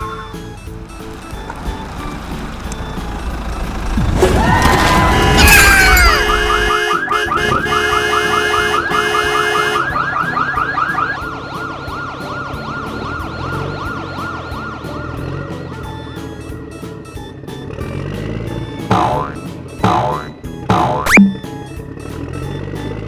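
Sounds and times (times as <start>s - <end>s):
electronic siren yelping: 9.8s - 15.2s.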